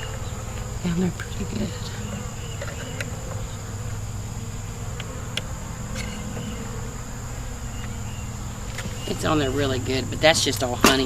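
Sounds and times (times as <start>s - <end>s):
honeybees buzzing: 0.0s - 11.0s
faint clicks: 4.9s - 6.5s.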